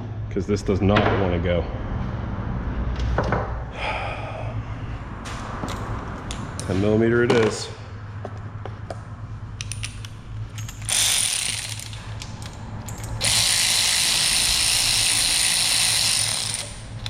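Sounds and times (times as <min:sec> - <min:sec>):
ratchet clicking: 0:09.6 - 0:17.0.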